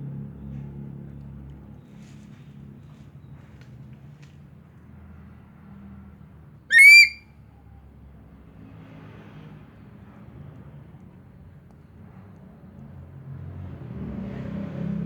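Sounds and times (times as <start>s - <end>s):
eagle shrill call: 6.7s - 7.2s.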